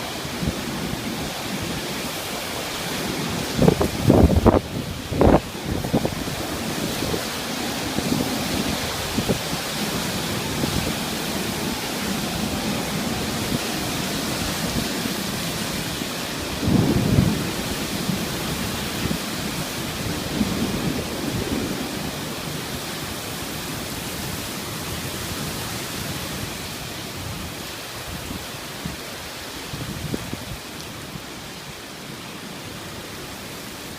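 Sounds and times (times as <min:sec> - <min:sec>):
torrential rain: 0:00.0 - 0:33.9.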